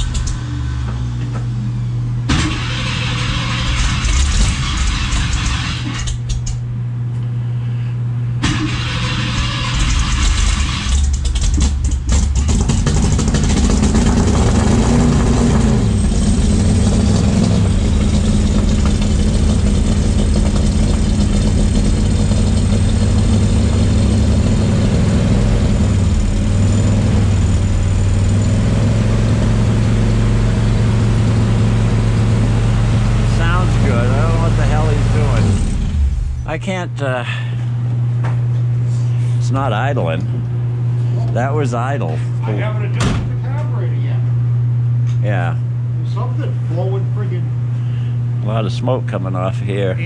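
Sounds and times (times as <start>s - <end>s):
engine starting and revving: 0.0s - 0.9s, 2.3s - 6.2s, 8.4s - 36.5s.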